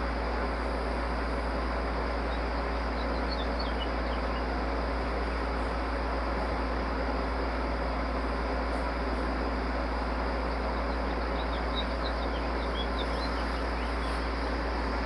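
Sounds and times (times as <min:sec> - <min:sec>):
steady hum and hiss: 0:00.0 - 0:15.0
faint high chirps: 0:10.8 - 0:14.4.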